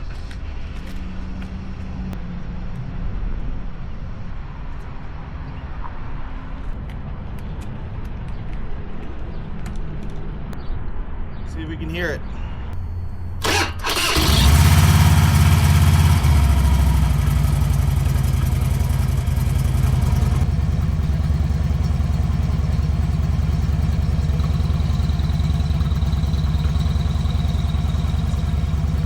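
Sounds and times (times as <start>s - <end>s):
motorcycle engine idling: 13.4s - 29.0s.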